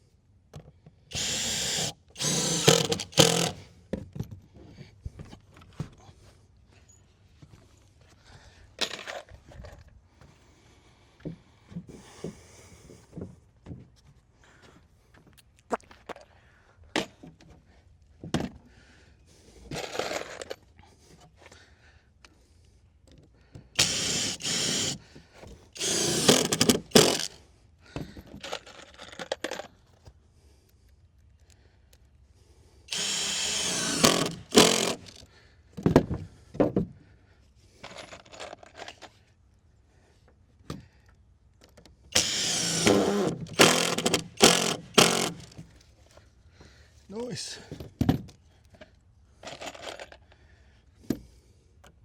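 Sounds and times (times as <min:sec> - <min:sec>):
power drill driving screws: 0:01.1 - 0:03.6, 0:23.8 - 0:25.1, 0:25.8 - 0:27.4, 0:32.9 - 0:35.2, 0:42.1 - 0:45.7.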